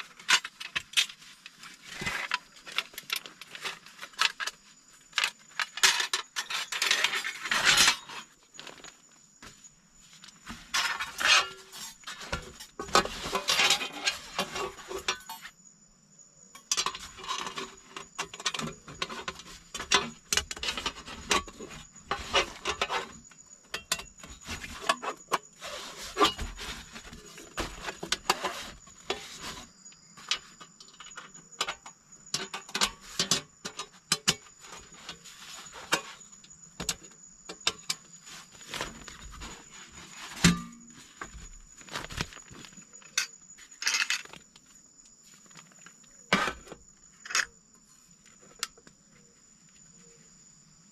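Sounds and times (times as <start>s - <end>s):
small objects clinking and knocking: 0.1s - 9.0s, 40.3s - 44.5s.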